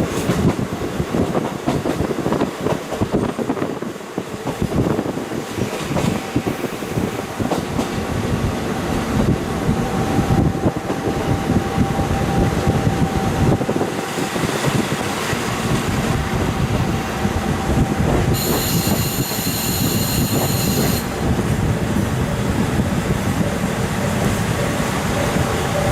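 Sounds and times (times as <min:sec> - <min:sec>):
rail clicks: 0:00.0 - 0:25.9
train wheels and engine rumbling: 0:00.0 - 0:25.9.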